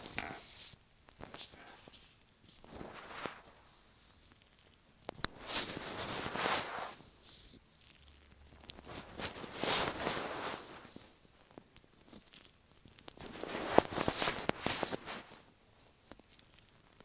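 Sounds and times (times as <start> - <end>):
gloved fingers rubbing microphone: 5.4 - 7.4, 8.8 - 11.2, 13.2 - 16.0.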